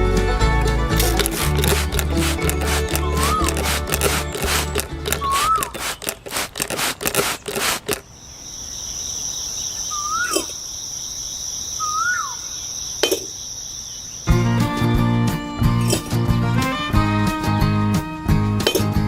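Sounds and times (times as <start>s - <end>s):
rapid clicking and tapping: 0.6s - 8.0s
whistled bird calls: 3.0s - 3.6s, 4.2s - 6.0s, 8.0s - 14.3s
insect chirring: 7.3s - 14.3s.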